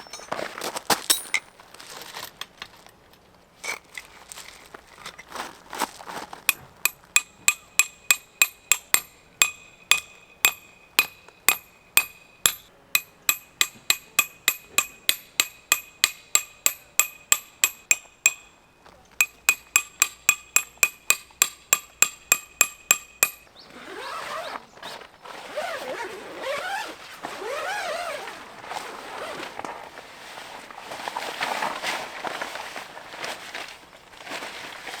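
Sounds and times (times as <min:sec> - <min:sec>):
hammer striking metal tent pegs: 0:06.5 - 0:18.6, 0:19.2 - 0:23.5.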